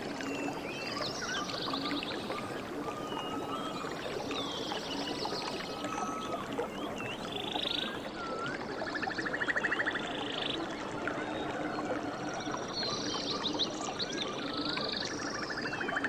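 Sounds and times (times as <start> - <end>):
running water: 0.0 - 16.0
birds whistling and trilling: 0.2 - 11.4.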